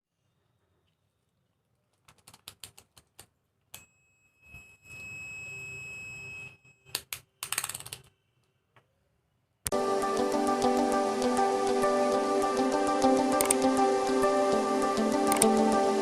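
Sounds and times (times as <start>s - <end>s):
sharp clicks: 13.4s - 13.8s, 15.2s - 15.6s.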